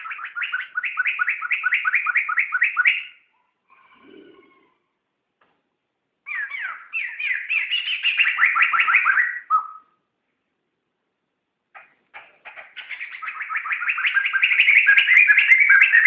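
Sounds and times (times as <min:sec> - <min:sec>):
bird singing falling whistled notes: 0:06.3 - 0:09.9, 0:12.8 - 0:16.0.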